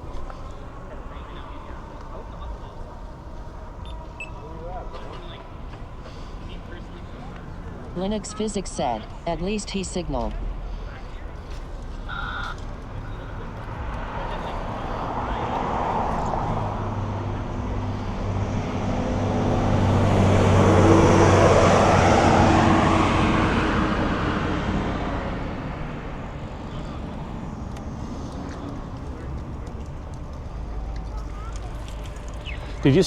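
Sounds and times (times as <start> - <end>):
vehicle passing by: 10.0 - 33.0.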